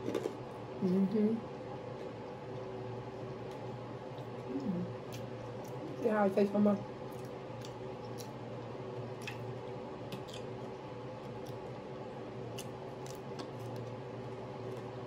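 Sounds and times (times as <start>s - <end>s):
steady low hum: 0.0s - 15.0s
sharp crunches of chewing: 12.5s - 14.0s.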